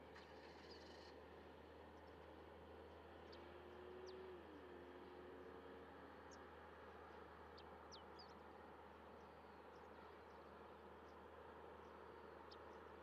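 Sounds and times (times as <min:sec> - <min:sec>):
low steady hum: 0:00.0 - 0:13.0
small birds chirping: 0:07.5 - 0:13.0.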